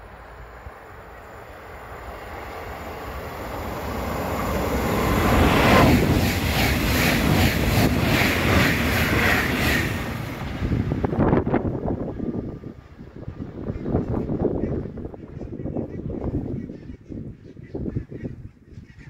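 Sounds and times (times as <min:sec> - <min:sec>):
train passing at speed: 0:00.0 - 0:17.4
train cars clattering: 0:03.8 - 0:10.7.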